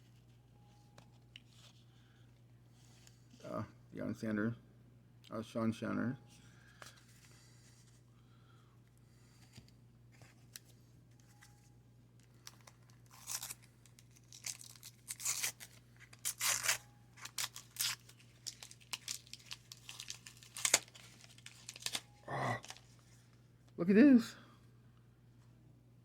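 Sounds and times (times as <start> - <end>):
wax paper wrapper tearing: 12.4 - 22.9.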